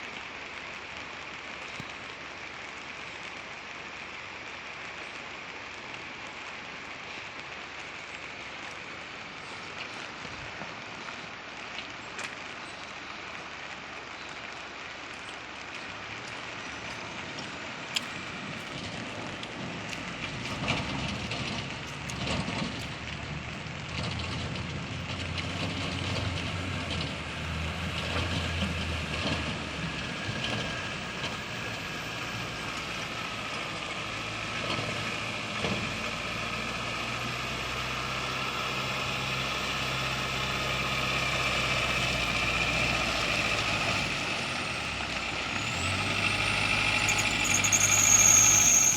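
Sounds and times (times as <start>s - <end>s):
diesel engine droning: 15.7s - 48.9s.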